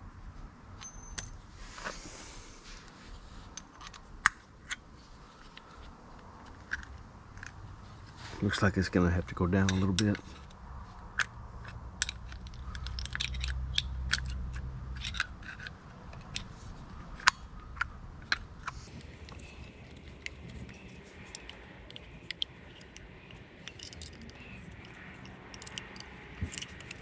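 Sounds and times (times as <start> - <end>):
metallic clicks of tools: 11.2 - 16.5, 18.6 - 27.0
low steady hum: 14.9 - 27.0.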